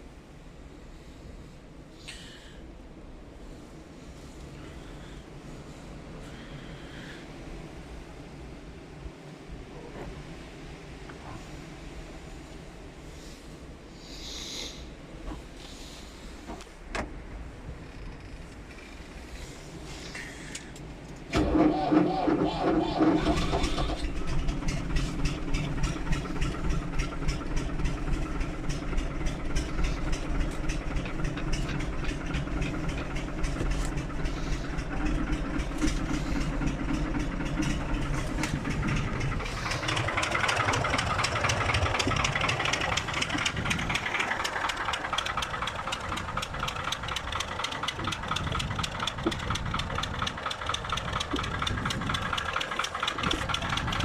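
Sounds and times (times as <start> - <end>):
diesel tractor idling with clatter: 11.1 - 54.0.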